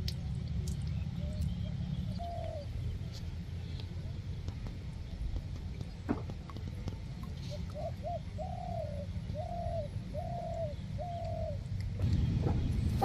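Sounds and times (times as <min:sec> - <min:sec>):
bird calling low notes: 0:00.9 - 0:03.1, 0:07.4 - 0:12.7.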